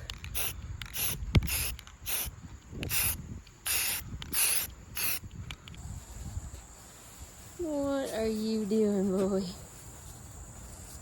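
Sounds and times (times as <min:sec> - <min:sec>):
spray paint can hissing: 0:00.0 - 0:05.3.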